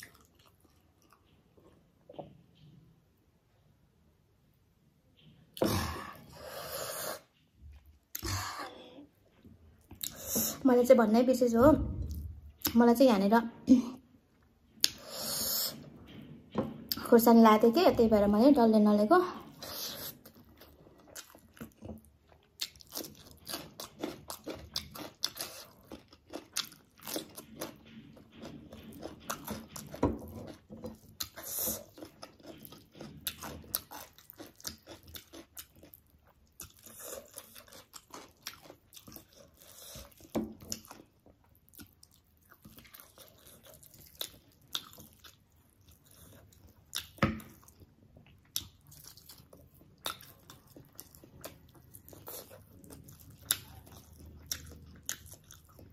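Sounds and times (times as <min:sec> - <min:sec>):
chewing and biting food: 0:00.0 - 0:01.5, 0:19.4 - 0:55.9.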